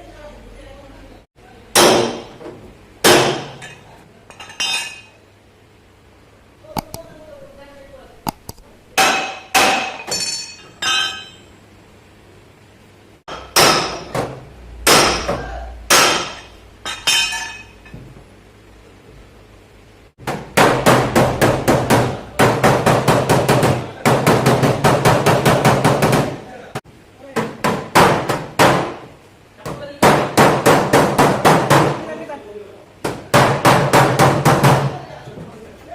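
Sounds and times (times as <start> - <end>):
hammer striking sheet metal: 1.8 - 2.4, 3.0 - 3.6, 8.3 - 11.4, 13.3 - 17.7, 20.2 - 26.4.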